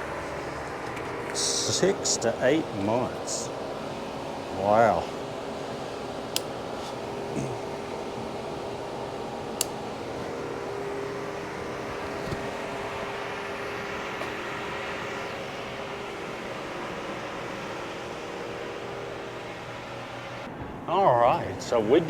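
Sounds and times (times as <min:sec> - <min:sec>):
faint constant tone: 0:00.0 - 0:22.0
ventilation hum: 0:00.0 - 0:22.0
sharp click: 0:06.3 - 0:06.5.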